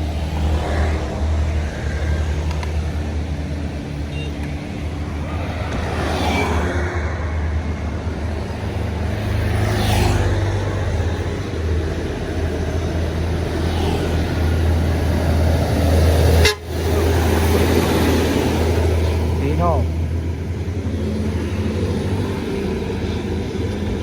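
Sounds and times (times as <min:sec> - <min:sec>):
diesel vehicles passing: 0:00.0 - 0:24.0
vehicle horn: 0:16.4 - 0:16.9.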